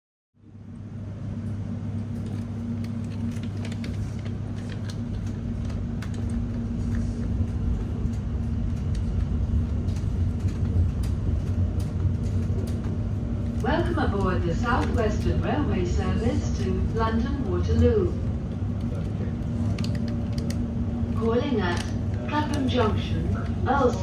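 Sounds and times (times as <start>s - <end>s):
train interior rumble: 0.4s - 24.0s
electrical hum: 0.9s - 24.0s
faint clicks and rattles: 18.8s - 20.6s.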